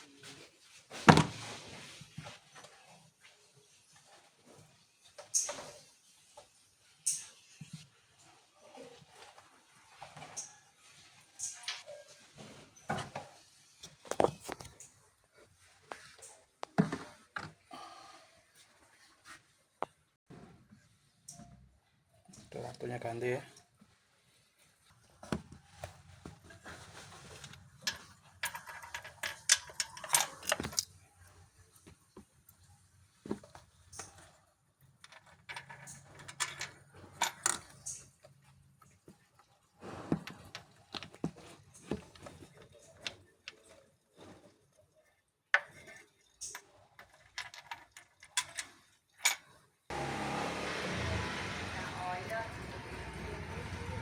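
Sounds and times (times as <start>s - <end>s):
hand tools clicking and knocking: 27.4s - 30.9s.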